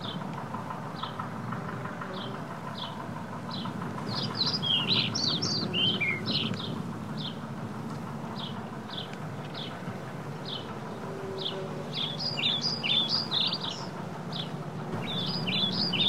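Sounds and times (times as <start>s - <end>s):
wind and road noise: 0.0s - 11.0s
birds chirping: 0.0s - 16.0s.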